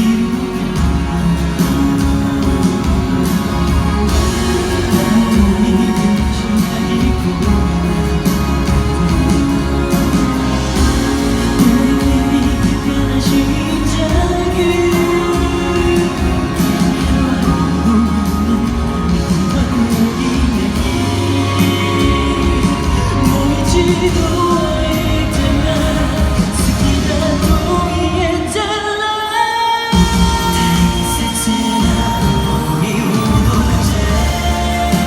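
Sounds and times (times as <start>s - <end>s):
backing track with bass and drums: 0.0s - 28.8s, 29.9s - 35.0s
man singing pop song: 0.0s - 35.0s.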